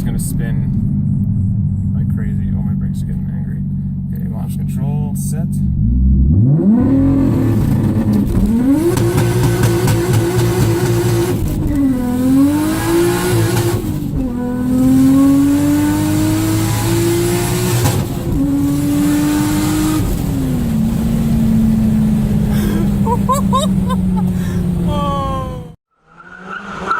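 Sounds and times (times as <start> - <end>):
car engine on rev limiter: 5.7 - 25.0
car accelerating through gears: 5.7 - 26.9.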